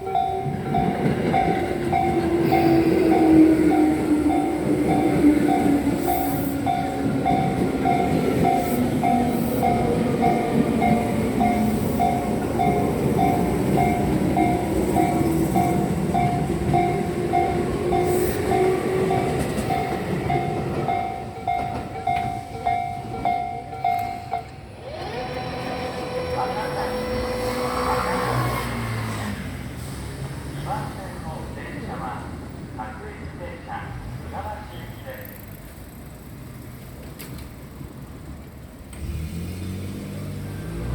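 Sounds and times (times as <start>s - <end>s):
level-crossing warning bell: 0.0s - 28.4s
electric train running: 0.0s - 29.5s
train motor whine: 23.9s - 29.2s.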